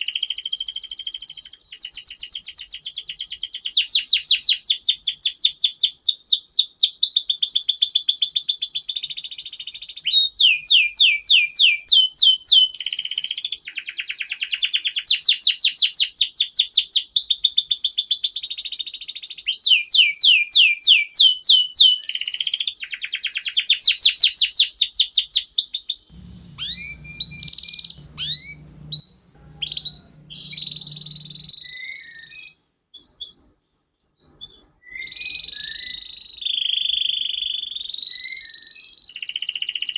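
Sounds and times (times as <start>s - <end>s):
short held whistle: 0.0s - 33.4s, 34.5s - 39.9s
canary singing rapid trills: 0.0s - 33.5s
bird chirps: 0.0s - 39.9s
low hum: 26.1s - 31.6s.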